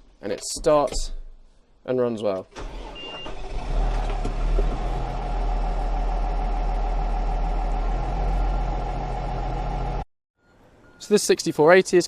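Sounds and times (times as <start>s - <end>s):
tractor diesel engine running: 2.6s - 10.1s.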